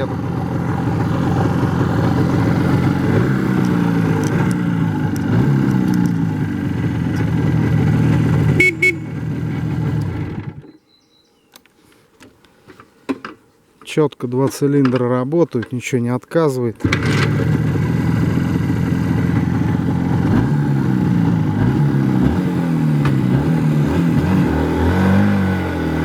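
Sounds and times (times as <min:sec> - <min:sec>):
motorcycle engine accelerating: 0:00.0 - 0:10.7, 0:16.8 - 0:26.0.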